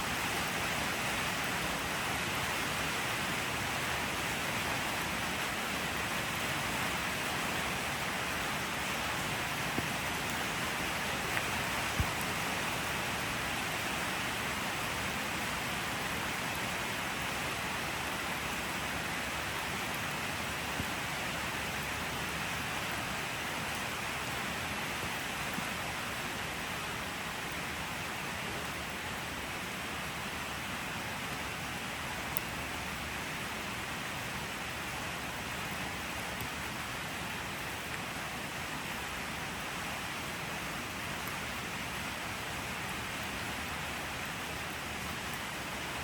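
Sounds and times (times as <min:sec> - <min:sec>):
rain hiss: 0:00.0 - 0:46.0
raindrop taps: 0:11.4 - 0:12.3.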